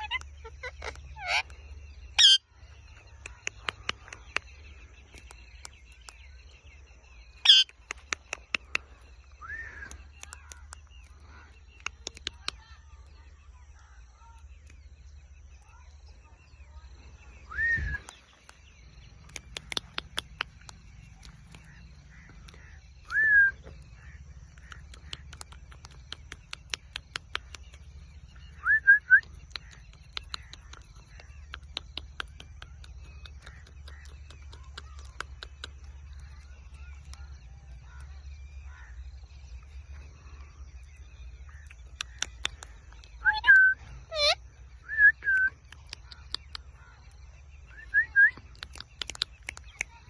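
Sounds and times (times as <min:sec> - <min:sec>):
sharp clicks: 0:07.5 - 0:09.1, 0:09.8 - 0:11.1, 0:11.7 - 0:12.6, 0:18.0 - 0:28.2, 0:29.1 - 0:38.1, 0:41.5 - 0:43.2, 0:45.2 - 0:47.0, 0:47.9 - 0:50.0
parakeet whistled calls: 0:43.2 - 0:45.5.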